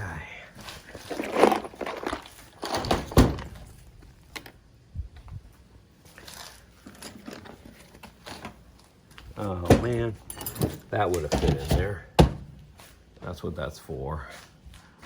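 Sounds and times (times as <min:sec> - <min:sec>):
gear rustling: 0:00.5 - 0:04.6, 0:05.2 - 0:13.0
thumps and knocks: 0:09.6 - 0:12.8.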